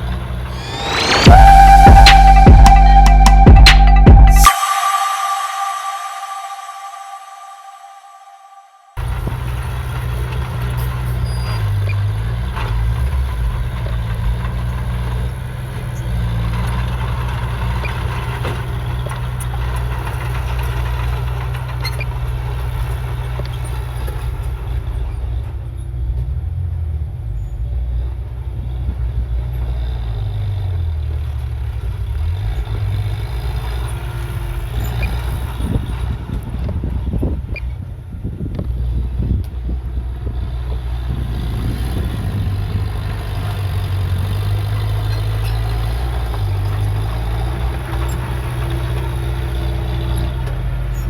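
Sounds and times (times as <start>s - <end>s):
diesel engine drone: 0.0s - 51.0s.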